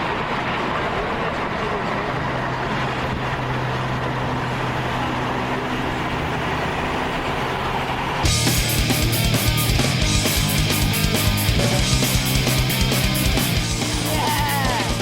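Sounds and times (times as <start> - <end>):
road noise: 0.0 - 15.0
vehicle engine hum: 0.0 - 15.0.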